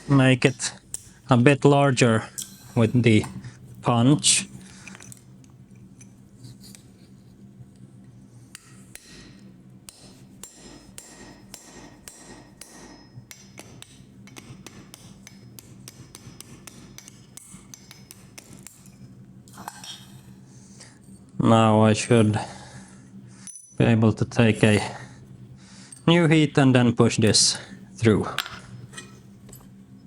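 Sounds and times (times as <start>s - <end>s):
hammer striking punch into iron: 8.6s - 18.8s.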